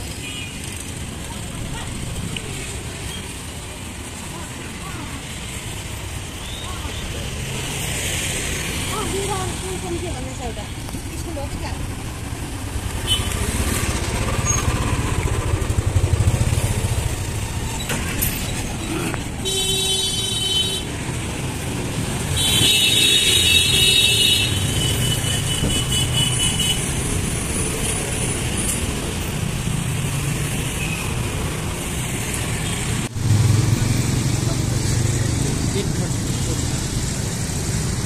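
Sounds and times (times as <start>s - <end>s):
cars passing: 0.0s - 38.0s
motorcycles passing: 0.0s - 38.0s
vehicle horns sounding: 13.0s - 13.5s, 19.4s - 20.9s, 22.4s - 26.9s.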